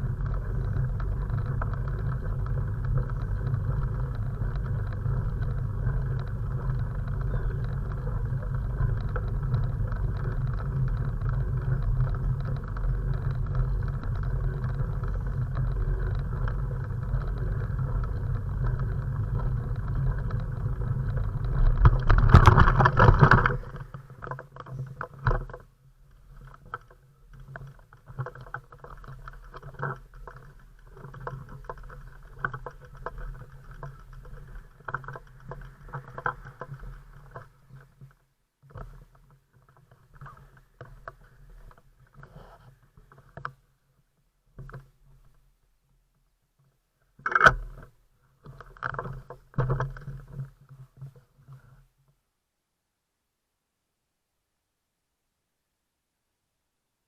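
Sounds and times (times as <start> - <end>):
road rumble: 0.0 - 25.4
knocks and rustles: 0.0 - 43.6.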